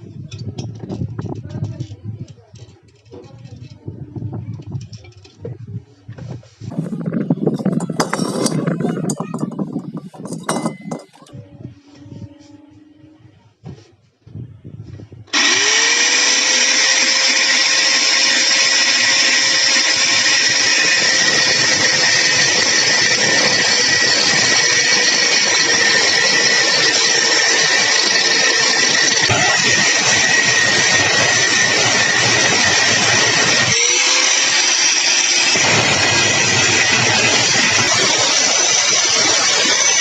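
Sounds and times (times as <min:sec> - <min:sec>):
hissing grind: 0:06.4 - 0:11.4, 0:15.3 - 0:40.0
power tool motor whine: 0:15.3 - 0:40.0.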